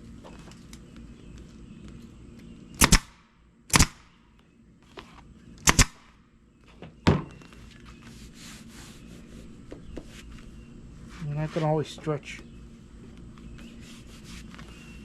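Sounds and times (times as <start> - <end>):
staple gun firing: 2.8 - 3.1, 5.6 - 6.0.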